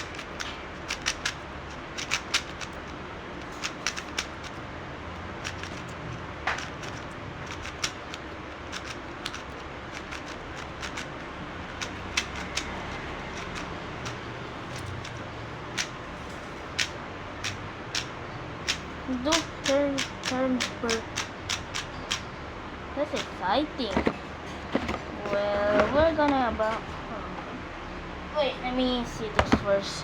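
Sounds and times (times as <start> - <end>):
speed cube plastic clicks: 0.0 - 4.6, 5.4 - 16.0, 16.8 - 22.2.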